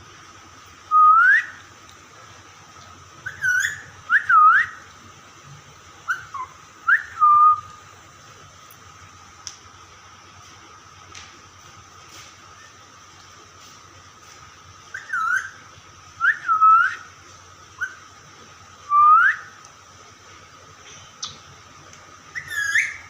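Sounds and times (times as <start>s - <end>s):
parrot whistling: 0.9s - 1.6s, 3.2s - 4.8s, 6.1s - 7.7s, 14.9s - 15.6s, 16.2s - 17.1s, 17.8s - 18.0s, 18.9s - 19.6s, 22.3s - 23.0s.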